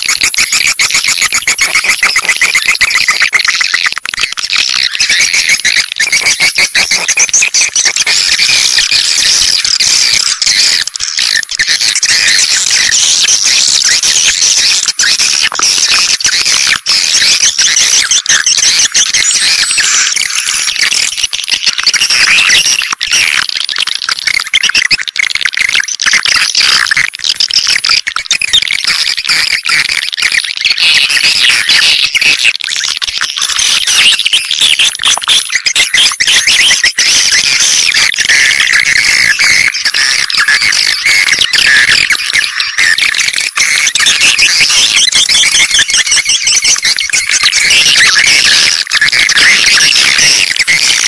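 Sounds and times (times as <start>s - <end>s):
swiftlet chirps and twitters: 4.2s - 21.2s.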